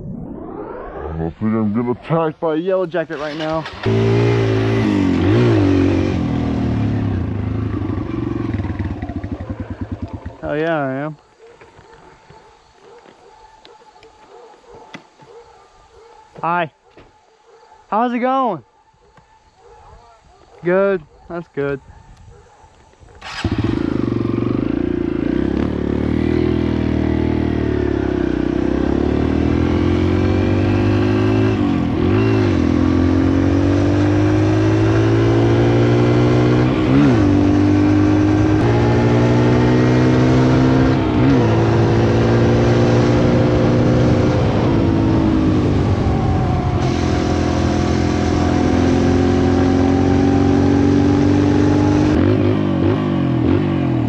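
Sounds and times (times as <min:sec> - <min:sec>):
dirt bike engine revving: 0:03.0 - 0:10.8, 0:23.2 - 0:54.0.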